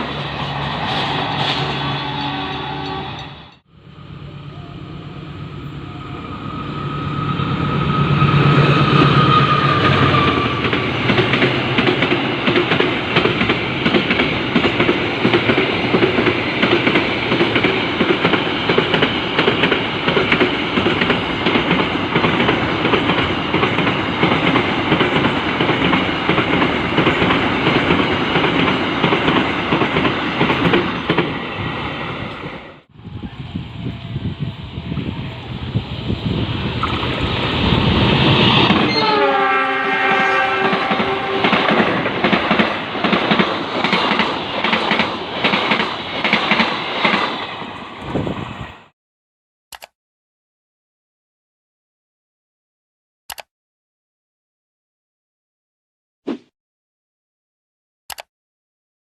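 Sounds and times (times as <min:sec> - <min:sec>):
locomotive engine hum: 0:00.0 - 0:13.8
train wheels clattering on rails: 0:09.1 - 0:31.4, 0:40.6 - 0:47.6.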